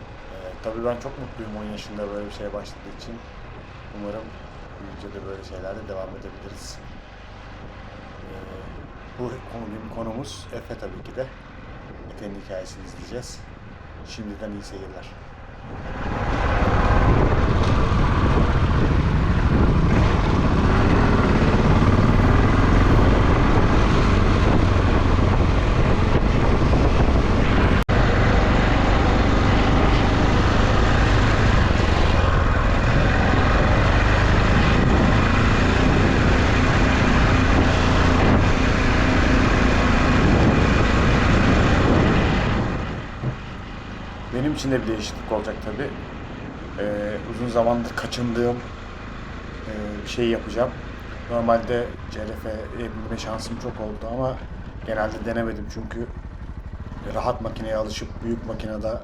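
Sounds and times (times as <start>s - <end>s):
wind noise on microphone: 11.7s - 12.3s, 15.2s - 44.1s
dirt bike engine running: 15.6s - 44.8s, 48.7s - 59.0s.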